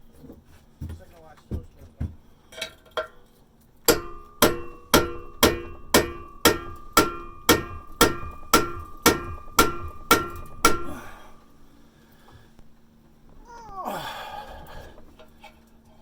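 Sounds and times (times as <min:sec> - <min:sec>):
hammer striking screwdriver: 0:03.9 - 0:11.2.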